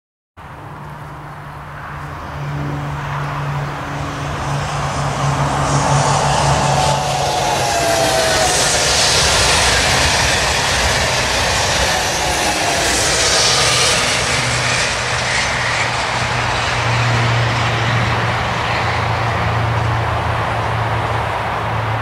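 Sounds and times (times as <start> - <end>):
high-speed train passing: 0.4 - 22.0.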